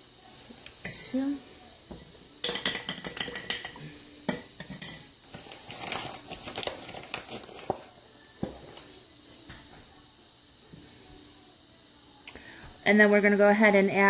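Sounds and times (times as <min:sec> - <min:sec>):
spoon clinking and scraping containers: 0:02.4 - 0:07.4.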